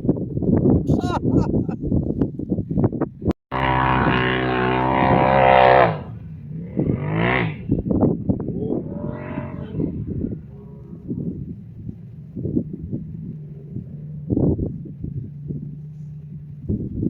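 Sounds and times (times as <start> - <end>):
off-road engine revving: 3.5 - 17.0.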